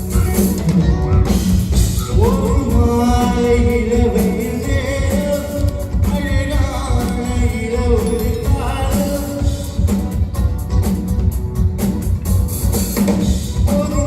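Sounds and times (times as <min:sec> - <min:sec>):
drums: 0:00.0 - 0:14.0
live band music: 0:00.0 - 0:14.0.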